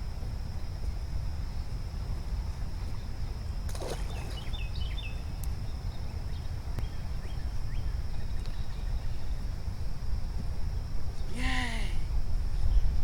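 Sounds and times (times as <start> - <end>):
constant high-pitched tone: 0.0 - 13.0.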